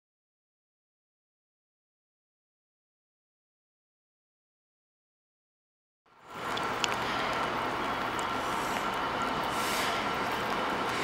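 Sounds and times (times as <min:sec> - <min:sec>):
distant freight train rumble: 0:06.3 - 0:11.0.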